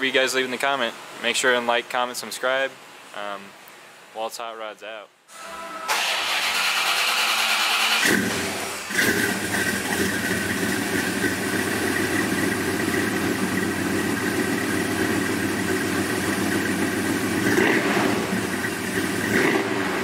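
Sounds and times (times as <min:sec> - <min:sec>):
car engine idling: 0:05.9 - 0:20.0.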